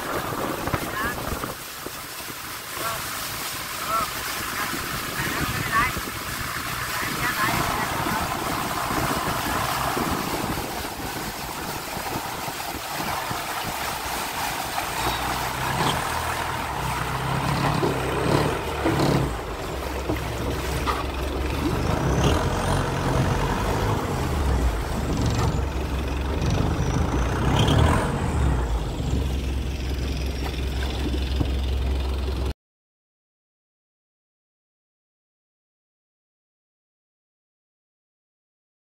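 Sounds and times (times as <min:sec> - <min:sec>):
rushing noise: 0:00.0 - 0:30.7
engine humming: 0:02.1 - 0:32.5.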